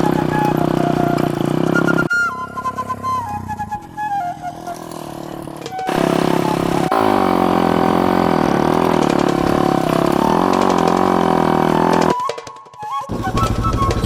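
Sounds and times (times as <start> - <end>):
motorcycle engine idling: 0.0 - 12.2, 13.1 - 14.0.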